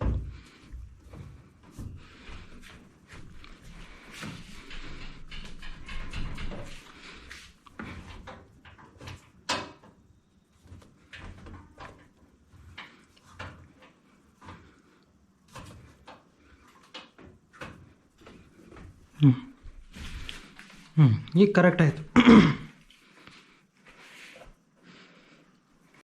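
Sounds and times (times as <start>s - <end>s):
knocks clicks and scrapes: 1.1s - 9.9s.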